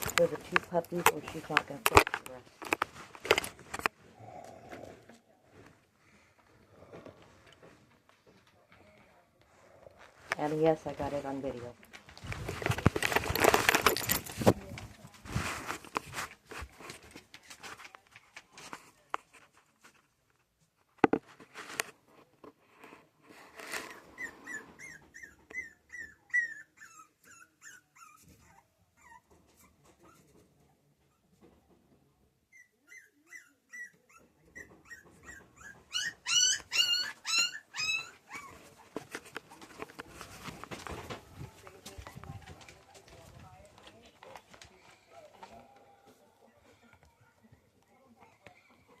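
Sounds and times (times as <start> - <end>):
puppies whimpering and crying: 24.0 - 29.8, 32.5 - 38.9.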